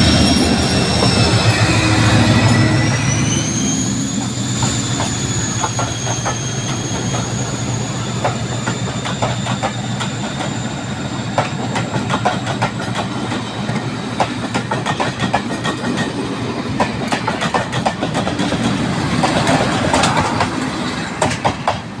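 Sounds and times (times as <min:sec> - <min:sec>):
high wheel squeal: 0:00.0 - 0:12.2
diesel locomotive engine: 0:00.0 - 0:22.0
wheels clicking over rail joints: 0:16.8 - 0:21.9.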